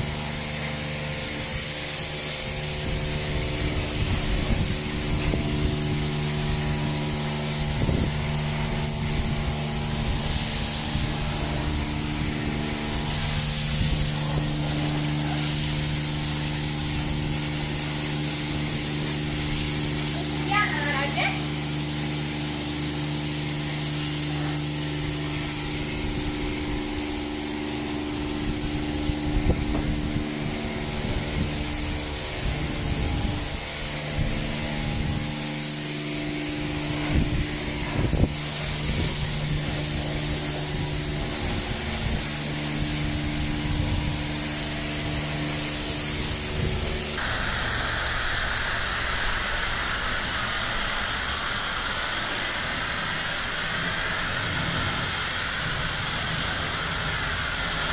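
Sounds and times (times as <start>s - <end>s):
engine noise: 0.0s - 57.9s
machine hum: 0.0s - 57.9s
pressure washer spray hissing: 0.0s - 57.9s.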